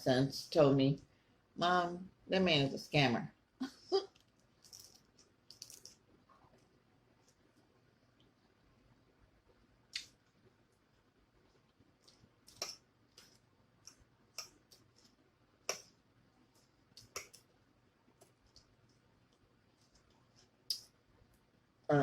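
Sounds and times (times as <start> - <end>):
chewing clicks and smacks: 4.1 - 6.7, 9.9 - 10.2, 11.6 - 15.0, 16.9 - 17.5.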